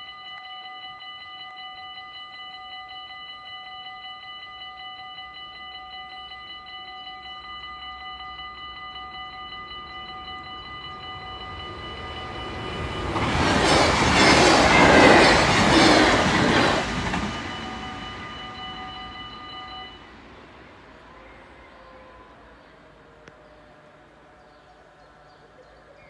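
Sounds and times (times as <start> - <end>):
level crossing bell ringing: 0.0 - 20.1
train passing at speed: 5.8 - 25.3.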